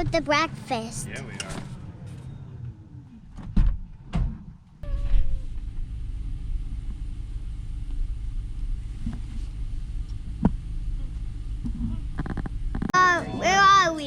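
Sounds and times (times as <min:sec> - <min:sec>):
car road rumble inside cabin: 0:04.8 - 0:12.9.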